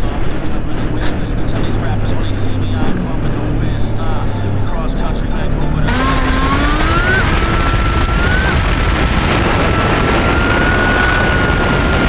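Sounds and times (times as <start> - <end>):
motorcycle engine shifting up: 5.9 - 12.0
wind rush: 5.9 - 12.0.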